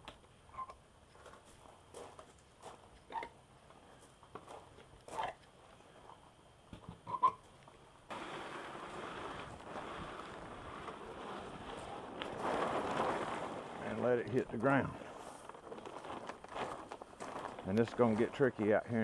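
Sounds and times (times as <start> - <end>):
wind noise on microphone: 8.1 - 13.8.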